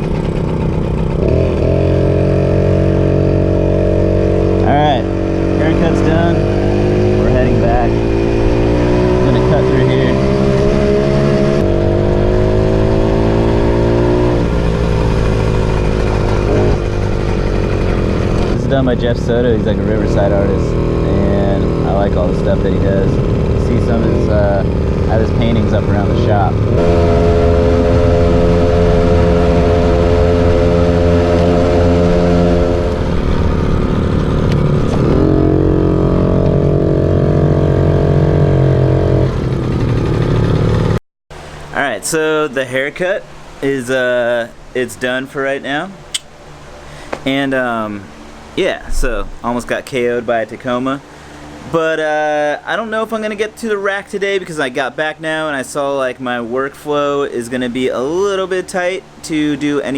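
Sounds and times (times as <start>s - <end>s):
moped engine accelerating: 0.0s - 54.4s.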